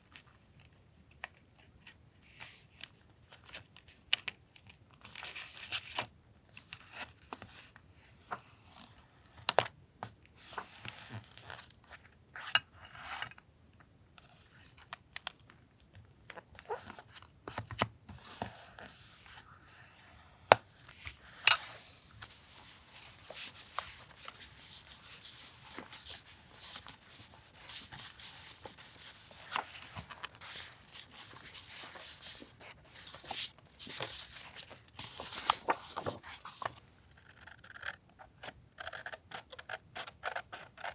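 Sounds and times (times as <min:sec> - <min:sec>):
paper rustling and tearing: 0:20.9 - 0:37.5.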